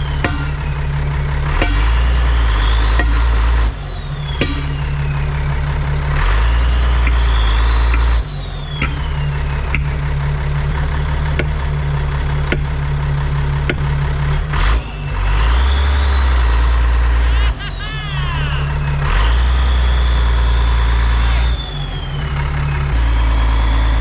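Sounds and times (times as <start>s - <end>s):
diesel engine revving with whine: 0.0s - 24.0s
sharp knocks: 0.2s - 0.8s, 4.4s - 4.9s.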